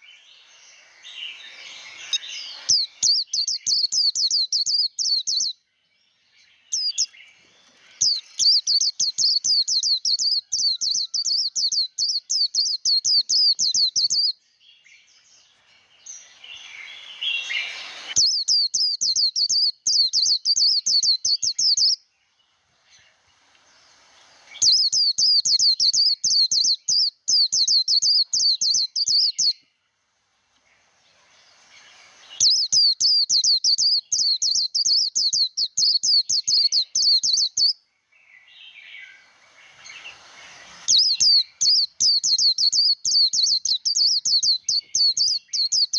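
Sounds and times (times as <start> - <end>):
bird high twittering song: 0.0 - 29.9, 30.5 - 45.9
soft rough burst: 30.0 - 32.5, 39.1 - 41.3.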